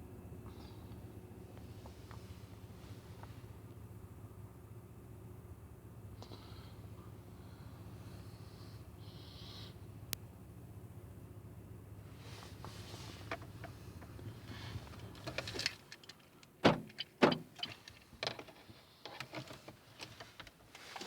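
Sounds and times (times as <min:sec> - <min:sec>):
low steady engine hum: 0:00.0 - 0:21.0
clicks and rattles: 0:13.2 - 0:21.0.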